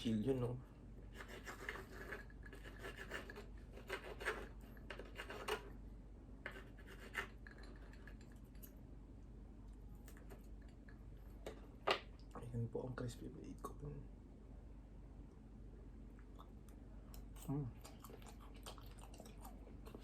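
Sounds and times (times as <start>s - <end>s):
cutlery scraping against a plate: 1.2s - 5.7s, 6.5s - 8.7s.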